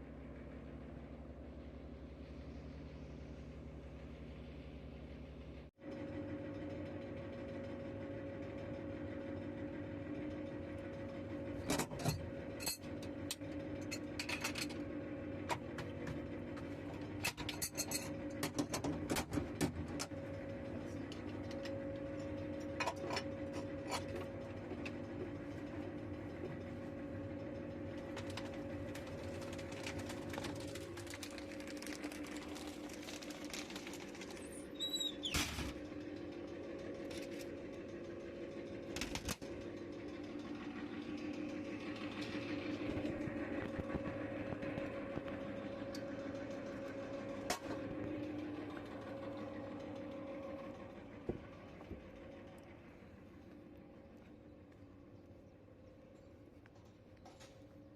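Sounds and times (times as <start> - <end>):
machine hum: 0.0 - 57.9
high squeak falling in pitch: 34.7 - 35.4.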